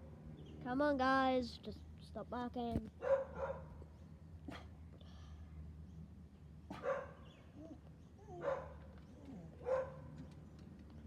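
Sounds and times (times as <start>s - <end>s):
dogs barking: 3.0s - 3.7s, 6.7s - 7.2s, 8.3s - 8.9s, 9.6s - 10.1s.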